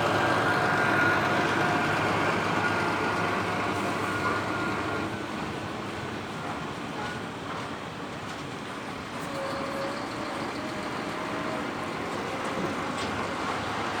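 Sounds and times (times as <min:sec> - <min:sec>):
truck engine and tyres running: 0:00.0 - 0:05.6.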